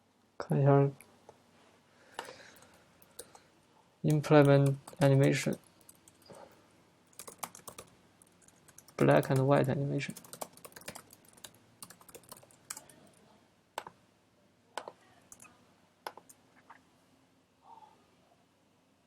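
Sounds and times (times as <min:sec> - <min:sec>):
faint keyboard typing: 0:02.1 - 0:03.5, 0:04.1 - 0:14.0, 0:14.8 - 0:16.8.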